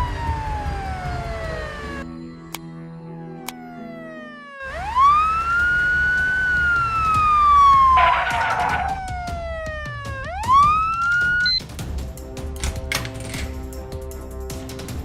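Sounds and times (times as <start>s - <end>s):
emergency vehicle siren wailing: 0.0s - 2.1s, 3.0s - 11.7s.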